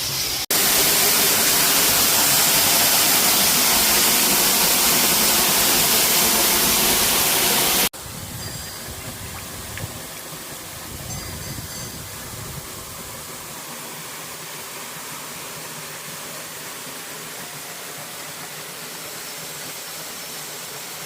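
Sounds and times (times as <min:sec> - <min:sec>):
waterfall roaring: 0:00.0 - 0:07.9.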